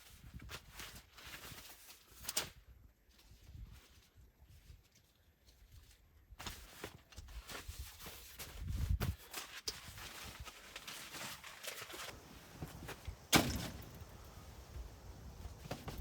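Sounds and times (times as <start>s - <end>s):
footsteps: 12.0s - 16.0s
handling knocks: 12.1s - 16.0s.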